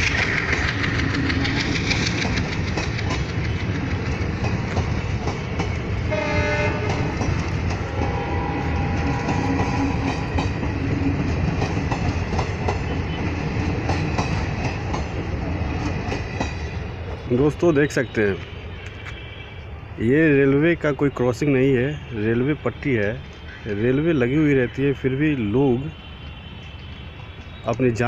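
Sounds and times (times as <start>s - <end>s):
train coaches rumbling past: 0.0s - 28.0s
train horn: 6.0s - 10.5s.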